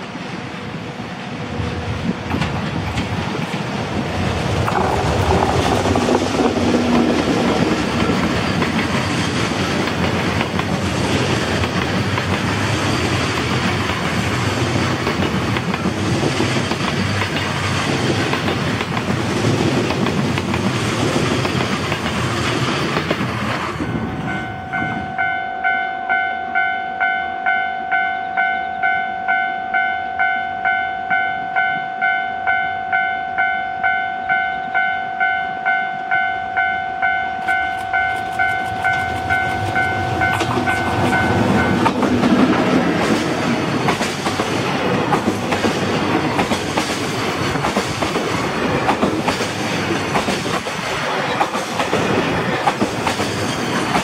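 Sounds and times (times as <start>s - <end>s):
train wheels rumbling on rail: 0.0s - 25.3s, 37.3s - 54.0s
train wheel clatter: 1.7s - 24.0s, 37.4s - 54.0s
level crossing alarm ringing: 23.8s - 42.0s.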